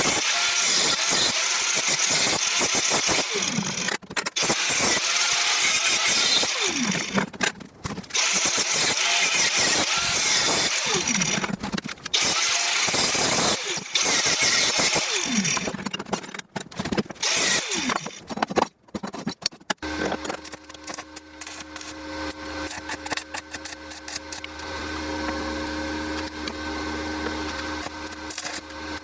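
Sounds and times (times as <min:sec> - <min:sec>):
angle grinder spinning down: 0:00.0 - 0:07.2, 0:08.2 - 0:11.6, 0:12.2 - 0:15.8, 0:17.2 - 0:18.1
steady motor hum: 0:19.8 - 0:29.0.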